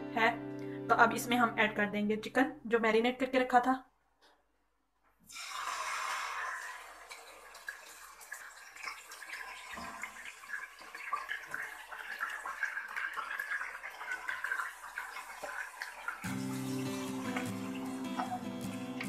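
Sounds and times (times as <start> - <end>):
chicken sizzling in hot oil: 5.3 - 19.0.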